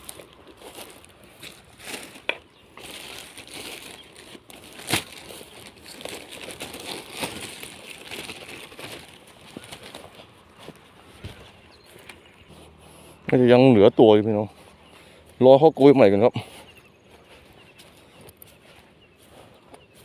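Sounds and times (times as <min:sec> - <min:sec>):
crinkling handling noise: 0:00.0 - 0:13.2.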